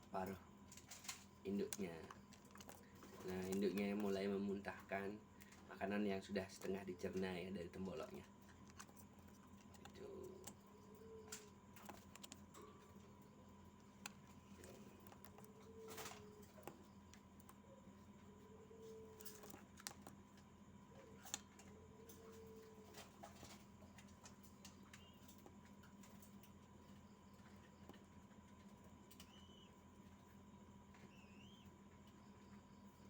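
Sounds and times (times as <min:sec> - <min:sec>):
dove soft low hums: 0:00.0 - 0:33.0
faint clicks and rustles: 0:00.2 - 0:18.2.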